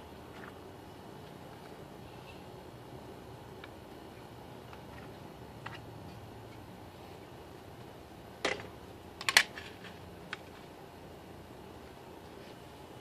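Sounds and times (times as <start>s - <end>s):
plastic toy clicks and knocks: 8.4s - 10.4s.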